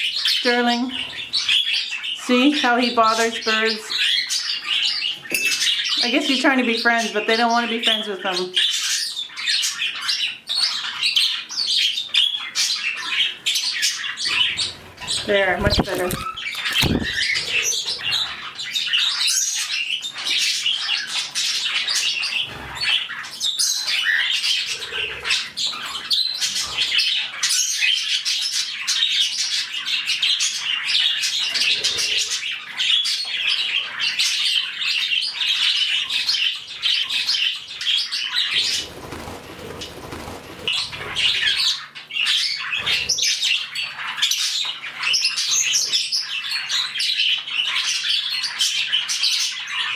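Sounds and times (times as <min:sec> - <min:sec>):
budgerigars chattering and chirping: 0:00.0 - 0:49.9
rustling noise: 0:15.0 - 0:17.2.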